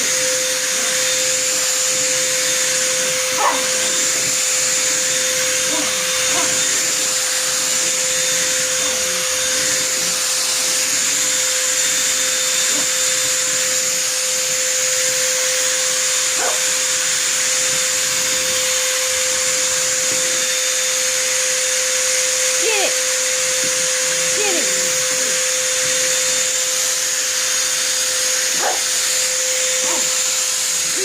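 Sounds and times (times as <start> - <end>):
vacuum cleaner motor: 0.0 - 31.0
faint dog vocal sounds: 5.6 - 6.7.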